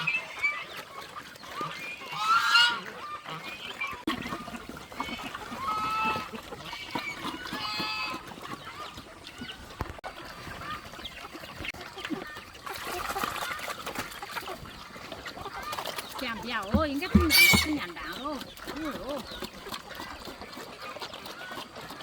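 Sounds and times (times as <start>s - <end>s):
waterfowl calling: 0.0s - 10.0s, 15.4s - 19.4s.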